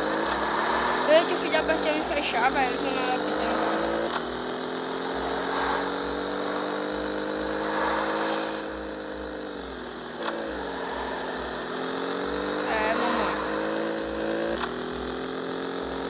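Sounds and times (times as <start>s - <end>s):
motorcycle engine running: 0.0s - 16.0s
click: 14.6s - 14.8s.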